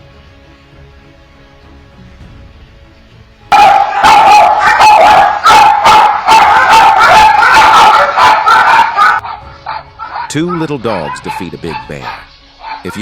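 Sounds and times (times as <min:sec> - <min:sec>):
small dogs barking rapidly: 0:03.5 - 0:13.0.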